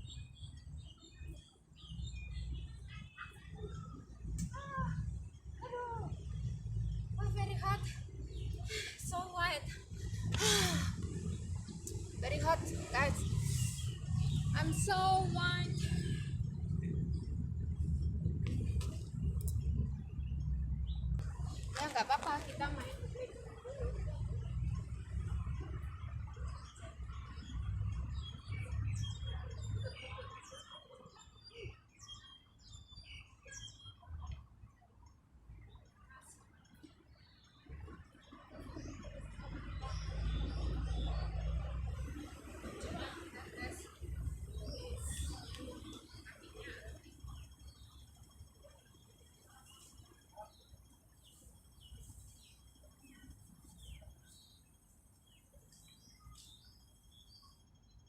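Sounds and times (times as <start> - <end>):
birds chirping: 0.0 - 58.0
low rumble: 3.6 - 30.0
bird chirps: 44.0 - 58.0.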